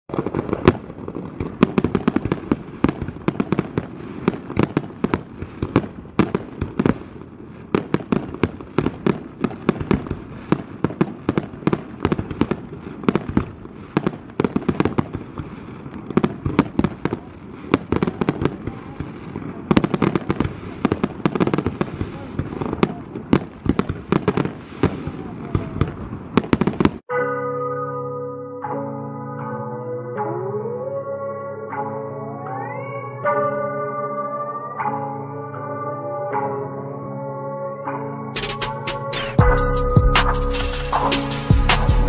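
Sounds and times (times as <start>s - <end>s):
firework bursts and crackles: 0.1s - 27.1s.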